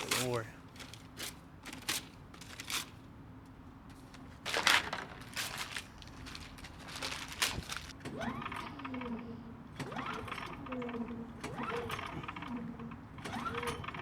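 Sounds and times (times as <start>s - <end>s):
paper crumpling: 0.0s - 3.1s, 3.9s - 8.0s.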